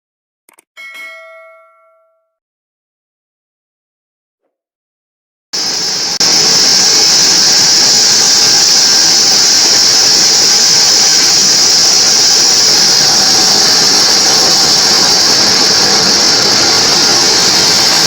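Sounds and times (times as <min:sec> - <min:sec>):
band sawmill cutting wood: 0:05.6 - 0:18.0
high-pitched hiss: 0:05.6 - 0:18.0.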